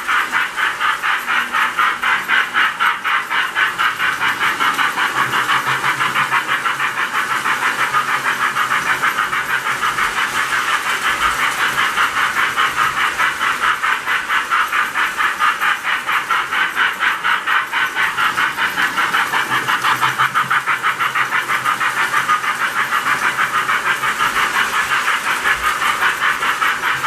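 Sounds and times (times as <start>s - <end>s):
toy steam locomotive chuffing: 0.0s - 27.0s.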